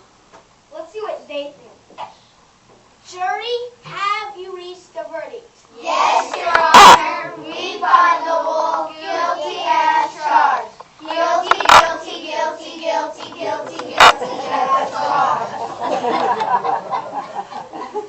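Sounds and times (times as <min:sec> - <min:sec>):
children singing: 0:05.9 - 0:15.6.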